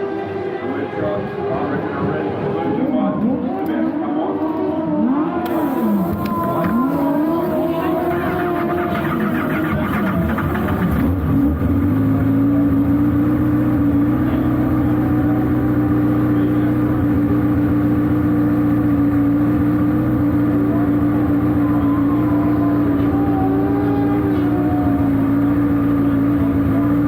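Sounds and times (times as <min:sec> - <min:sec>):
sidecar engine running at high revs: 0:05.5 - 0:27.0.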